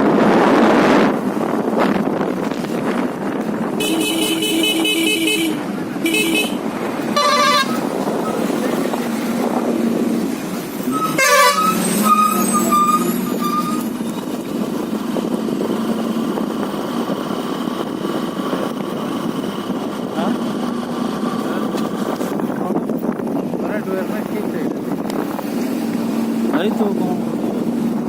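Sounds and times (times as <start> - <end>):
vehicle horn honking: 3.8 - 8.5, 10.9 - 13.9.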